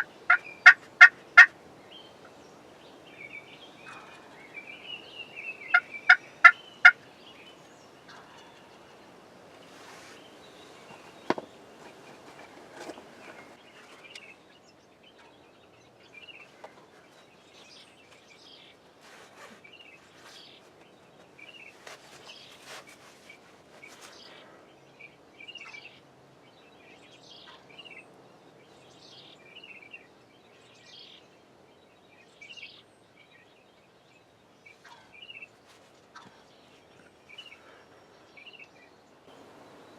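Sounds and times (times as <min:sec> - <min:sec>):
turkey calling: 0:00.0 - 0:01.5, 0:05.6 - 0:07.0
songbirds chirping: 0:00.0 - 0:39.9.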